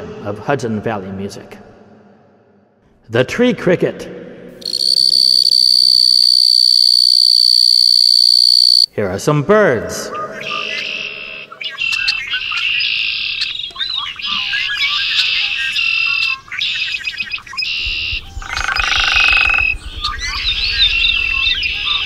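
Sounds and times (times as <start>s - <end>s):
low fast pulsing: 4.6s - 8.9s, 17.1s - 22.0s
birds singing and calling: 10.1s - 22.0s.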